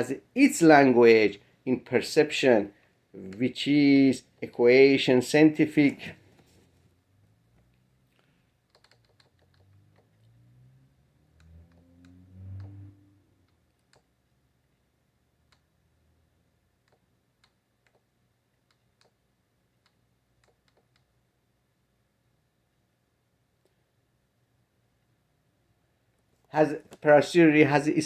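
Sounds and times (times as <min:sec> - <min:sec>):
computer keys clicking: 0:08.6 - 0:10.2, 0:13.4 - 0:14.1, 0:16.8 - 0:19.2, 0:19.8 - 0:21.1.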